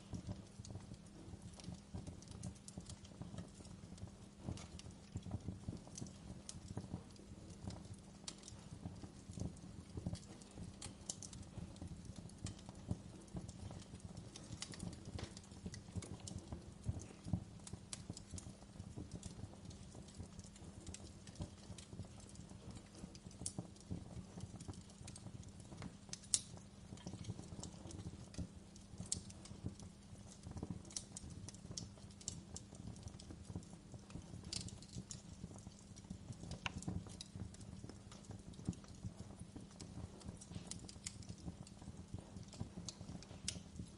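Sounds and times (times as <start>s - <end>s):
wood fire crackling: 0.0s - 43.9s.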